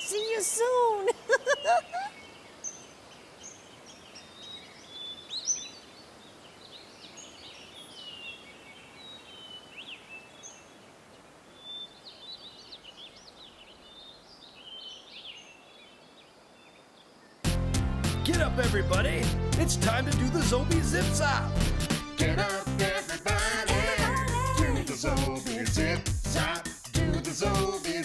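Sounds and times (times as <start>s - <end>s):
birds chirping: 0.0s - 17.4s
faint steady hiss: 0.0s - 17.6s.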